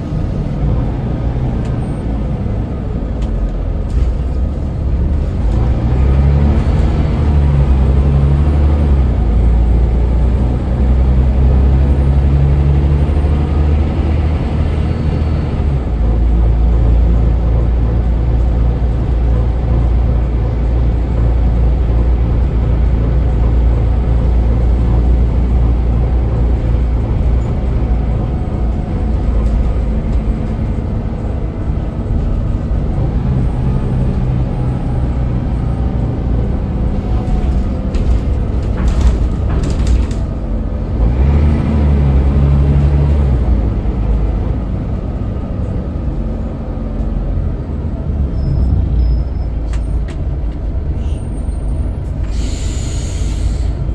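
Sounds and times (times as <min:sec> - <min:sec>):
bus engine droning: 0:00.0 - 0:53.9
air brake hisses: 0:52.2 - 0:53.9.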